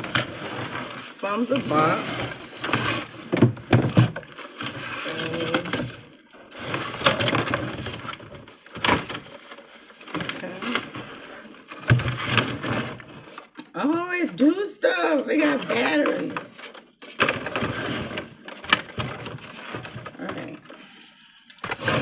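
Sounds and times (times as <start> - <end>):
cardboard and plastic rustling: 0.0 - 22.0.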